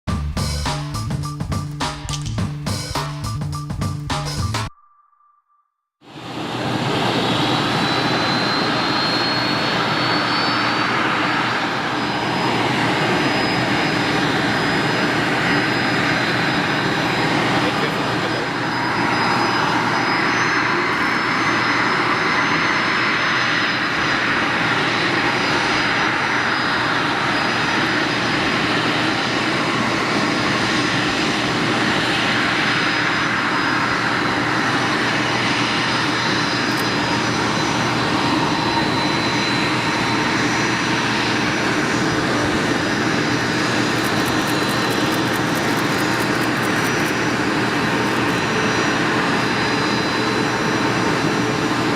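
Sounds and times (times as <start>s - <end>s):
faint high whine: 4.7s - 31.2s, 32.4s - 51.9s
jet engines running: 6.1s - 51.9s.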